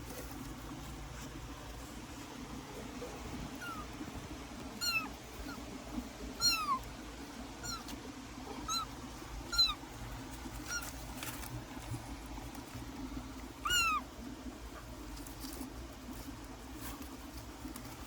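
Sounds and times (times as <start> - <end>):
kitten mewing: 3.5 - 3.9, 4.8 - 5.6, 6.4 - 6.9, 7.6 - 9.8, 13.6 - 14.0.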